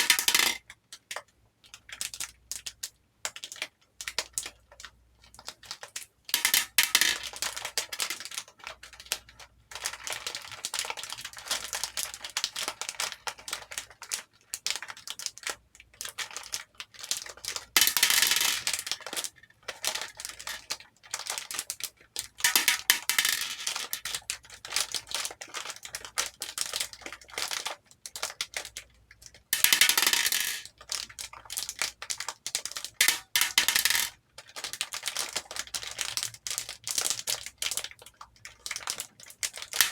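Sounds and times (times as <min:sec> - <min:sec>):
plastic beads clicking in a bowl: 0:00.0 - 0:00.7, 0:06.4 - 0:08.5, 0:17.2 - 0:27.6, 0:29.6 - 0:37.8, 0:38.7 - 0:39.9.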